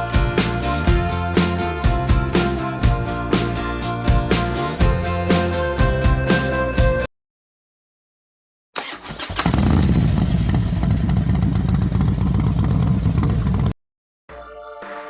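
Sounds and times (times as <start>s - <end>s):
motorcycle engine starting and running: 8.8s - 13.8s.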